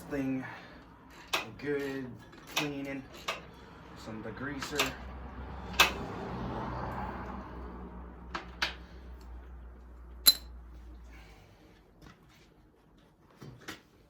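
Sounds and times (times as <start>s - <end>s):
metallic clinks and clanks: 10.2s - 10.6s.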